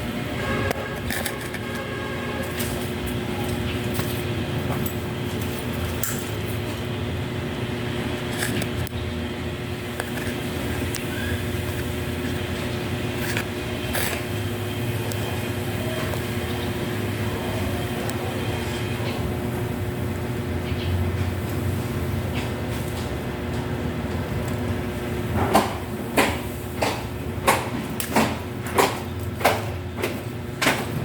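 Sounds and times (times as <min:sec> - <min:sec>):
constant tone: 0:00.0 - 0:07.2.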